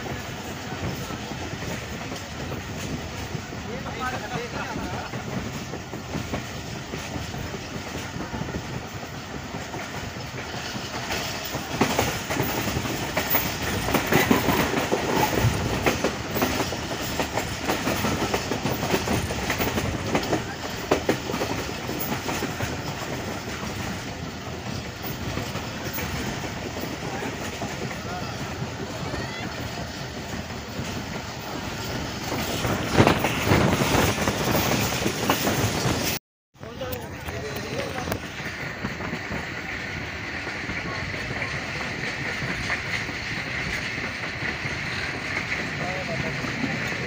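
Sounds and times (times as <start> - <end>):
train rolling rumble: 0.0 - 47.0.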